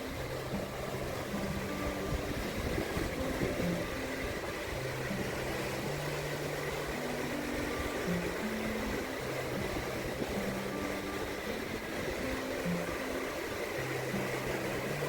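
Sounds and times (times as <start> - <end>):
soft music with low notes: 0.0 - 15.0
surf: 0.0 - 15.0
wind on microphone: 0.0 - 15.0.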